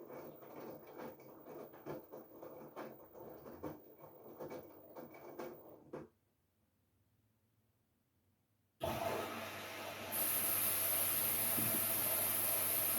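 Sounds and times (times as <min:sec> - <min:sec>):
washing machine tumbling laundry: 0:00.0 - 0:06.1.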